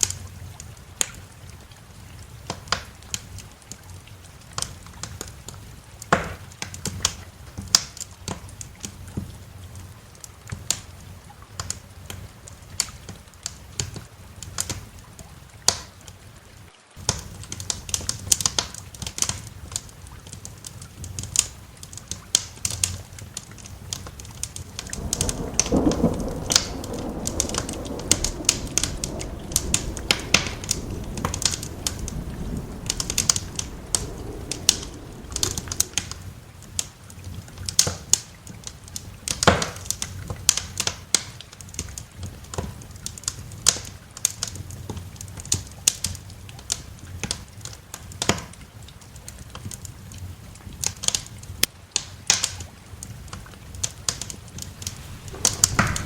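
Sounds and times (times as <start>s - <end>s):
rain hissing: 0.0s - 48.3s, 52.8s - 56.0s
wood fire crackling and popping: 2.2s - 9.8s, 17.0s - 56.0s
low roll of thunder: 23.5s - 38.1s, 54.3s - 56.0s.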